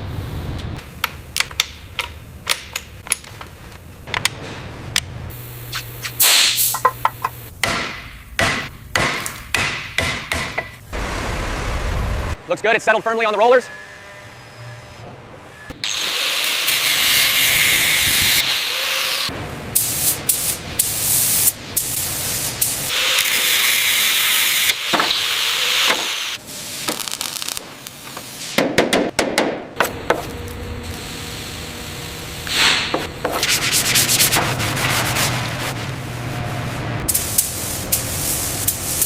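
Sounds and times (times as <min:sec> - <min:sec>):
sanding on a hard surface: 0:33.3 - 0:35.8.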